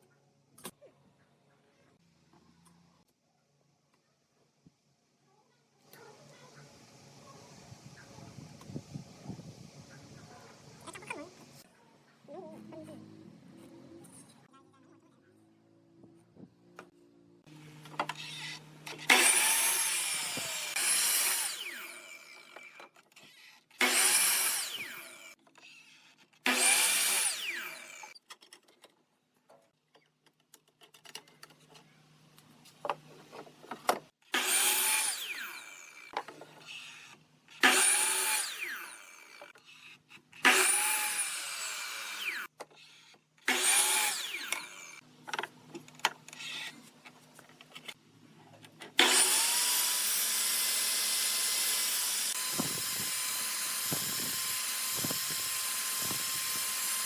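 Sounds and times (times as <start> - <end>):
power tool cutting wood: 17.5 - 28.2, 34.2 - 45.0, 48.9 - 57.0.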